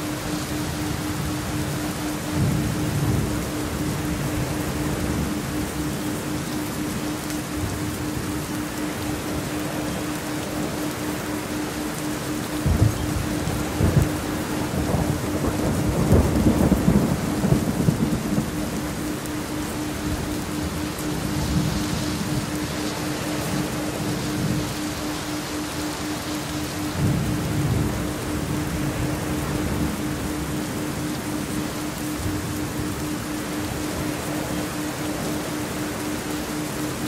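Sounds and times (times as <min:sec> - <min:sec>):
heavy rain: 0:00.0 - 0:37.0
steady low tone: 0:00.0 - 0:37.0
rolling thunder: 0:12.6 - 0:18.9.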